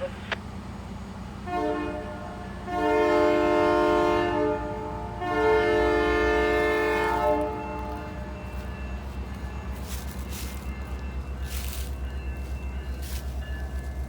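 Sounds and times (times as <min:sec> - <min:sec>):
train rumbling: 0:00.0 - 0:14.0
locomotive air horn chord: 0:01.4 - 0:10.7.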